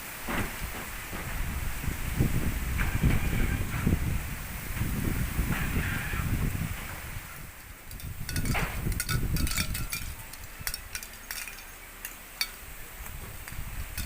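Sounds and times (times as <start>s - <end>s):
wind gusting against microphone: 0.0s - 14.0s
sharp ticks and clinks: 7.6s - 14.0s.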